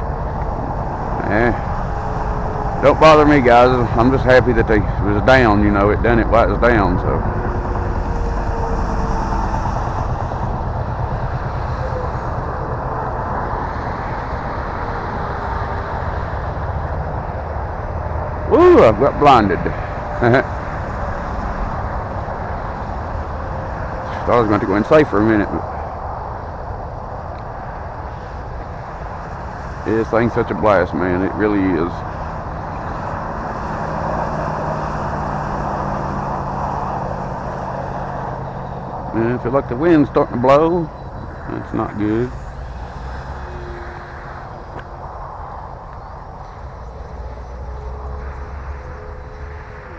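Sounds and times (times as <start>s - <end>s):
low rumbling noise: 0.0s - 49.9s
model airplane propeller drone: 0.0s - 49.9s
electric motor whine: 40.9s - 49.9s.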